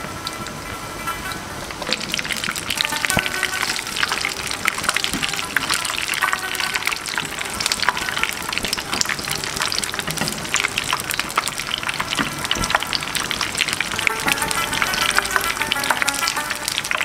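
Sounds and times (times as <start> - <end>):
fritters deep-frying in oil: 0.0 - 17.0.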